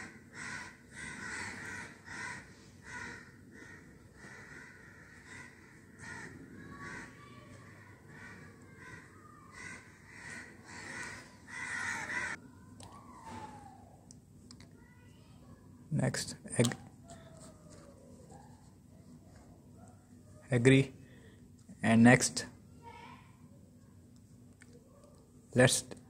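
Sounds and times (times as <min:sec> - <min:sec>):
faint bird calls: 0:00.0 - 0:14.0.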